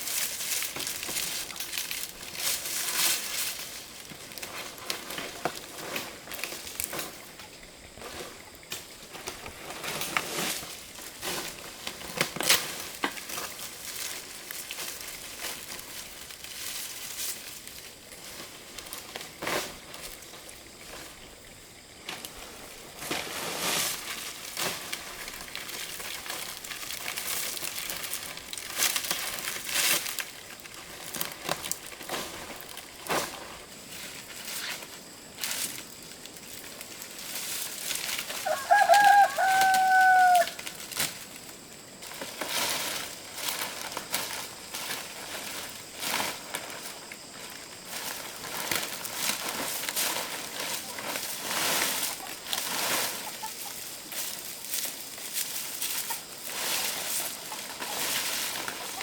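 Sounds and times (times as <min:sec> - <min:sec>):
rustling and crackling: 0:00.0 - 0:21.3, 0:21.9 - 0:59.0
rooster crowing: 0:38.3 - 0:40.6.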